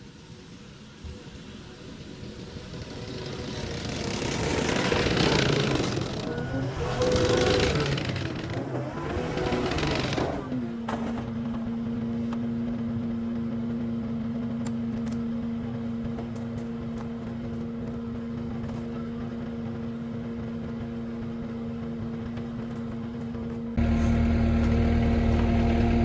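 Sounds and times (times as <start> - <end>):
track loader droning hum: 0.0 - 26.0.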